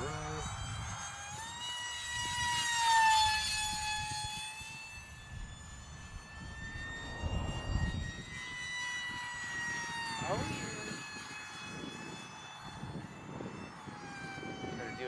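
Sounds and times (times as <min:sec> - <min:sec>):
electric ducted fan whining: 0:00.0 - 0:15.0
wind rumble on microphone: 0:00.0 - 0:15.0
rush of air: 0:07.0 - 0:08.3.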